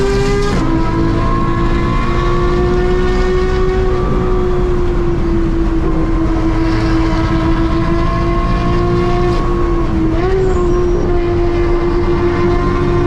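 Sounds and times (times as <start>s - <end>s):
car engine droning at high revs: 0.0s - 13.0s
sports car running ahead: 0.0s - 13.0s.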